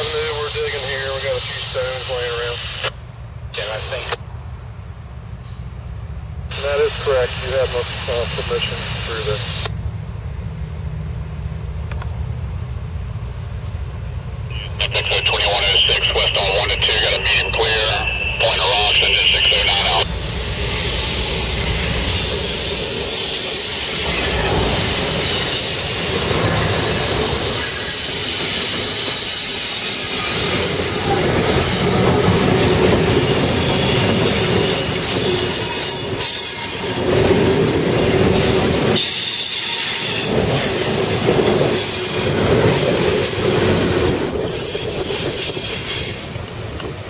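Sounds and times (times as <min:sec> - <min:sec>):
freight train rumbling: 0:00.0 - 0:47.0
train wheels squealing on rails: 0:16.5 - 0:46.4.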